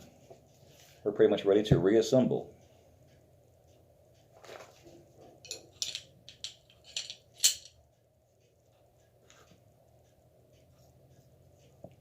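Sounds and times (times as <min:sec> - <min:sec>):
pistol parts clicking and rattling: 0:05.5 - 0:07.8.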